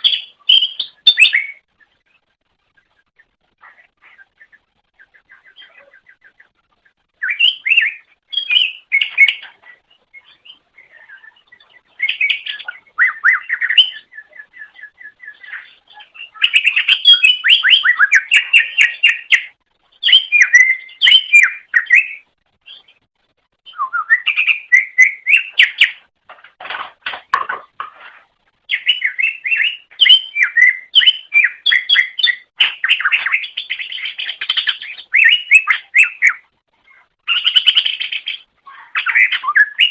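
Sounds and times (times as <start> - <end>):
bird chirping and trilling: 0.0 - 2.3, 3.2 - 23.0, 23.6 - 26.1, 28.6 - 39.9.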